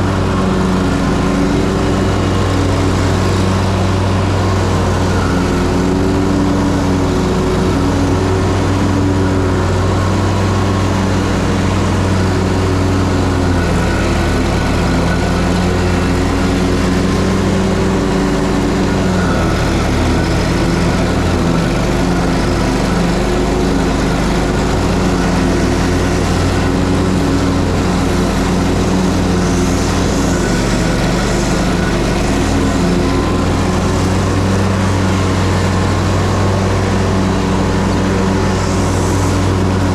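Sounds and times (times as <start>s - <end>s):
mower engine droning: 0.0s - 39.9s.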